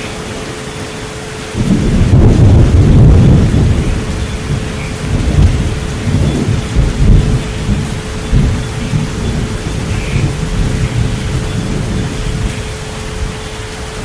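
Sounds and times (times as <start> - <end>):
steady pure tone hum: 0.0 - 14.0
steady rain: 0.0 - 14.0
thunder rumbling: 0.0 - 14.0.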